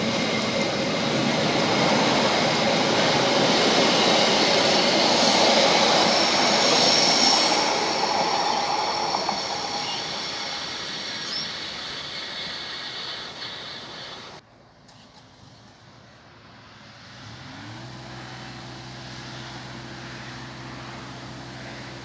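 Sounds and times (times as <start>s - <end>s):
train running: 0.0s - 14.4s.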